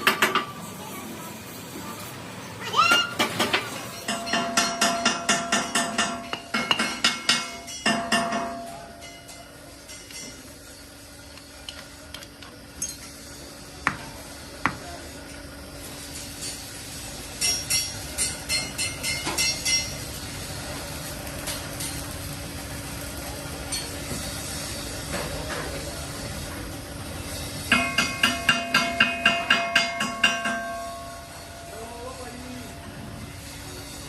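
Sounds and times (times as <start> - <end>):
hammer striking metal: 0.0 - 0.6, 2.9 - 10.4, 17.4 - 20.0, 27.7 - 31.9.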